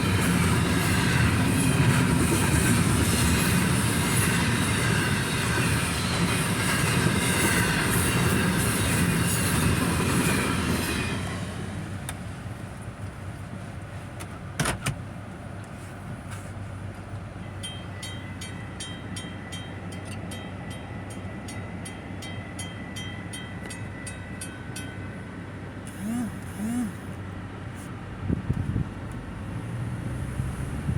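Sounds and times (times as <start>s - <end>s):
freight cars rumbling and clattering: 0.0s - 25.9s
crossing bell ringing: 17.4s - 25.8s.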